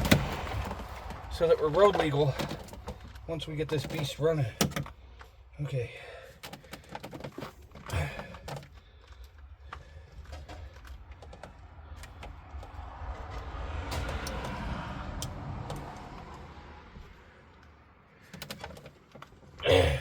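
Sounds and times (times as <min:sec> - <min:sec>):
low rumble: 0:00.0 - 0:03.6, 0:11.0 - 0:17.6
tools and parts rattling: 0:00.0 - 0:05.5, 0:06.2 - 0:14.6, 0:17.5 - 0:19.6.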